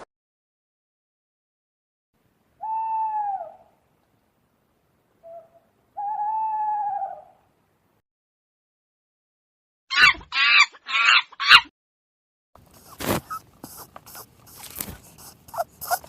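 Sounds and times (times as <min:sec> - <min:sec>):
owl hooting: 0:02.6 - 0:03.8, 0:05.2 - 0:07.4, 0:12.8 - 0:16.0.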